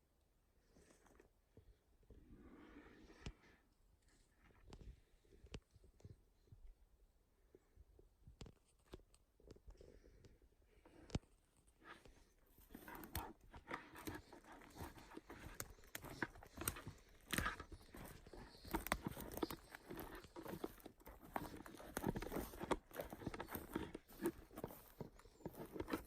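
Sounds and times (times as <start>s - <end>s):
footsteps crunching through undergrowth: 12.5s - 26.0s
twigs snapping underfoot: 12.7s - 26.0s.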